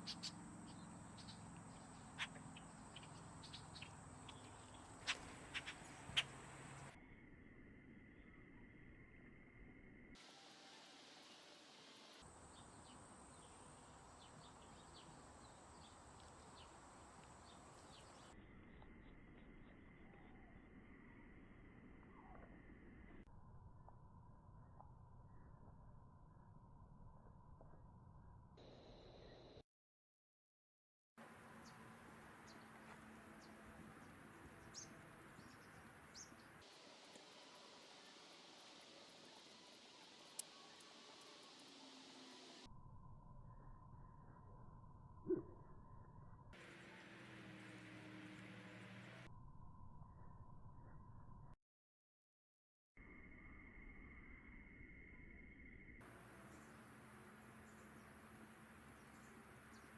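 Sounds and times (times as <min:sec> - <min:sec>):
bird chirps: 0:00.0 - 0:07.0, 0:31.6 - 0:42.7
faint bird chirps: 0:00.0 - 0:23.2, 0:31.6 - 0:51.6, 0:53.0 - 0:59.9
faint outdoor background noise: 0:00.0 - 0:29.6, 0:31.2 - 0:51.6, 0:53.0 - 0:59.9.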